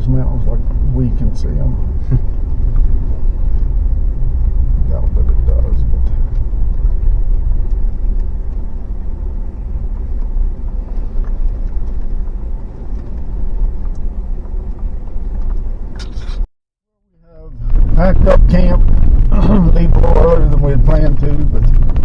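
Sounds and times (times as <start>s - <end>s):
truck driving heard from cab: 0.0s - 16.5s.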